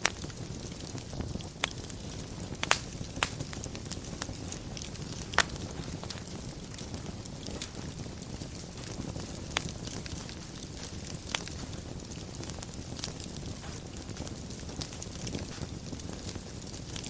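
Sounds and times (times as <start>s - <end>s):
fire crackling and popping: 0.0s - 17.0s
fire rumbling: 0.0s - 17.0s.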